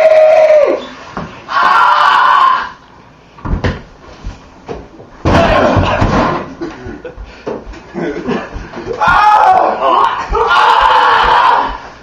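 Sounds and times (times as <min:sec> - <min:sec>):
person yelling: 0:08.9 - 0:11.9
person shouting: 0:09.0 - 0:11.9.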